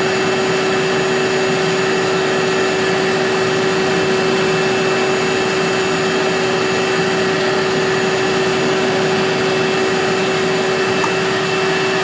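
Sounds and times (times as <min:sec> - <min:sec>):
shop vac running: 0:00.0 - 0:12.0.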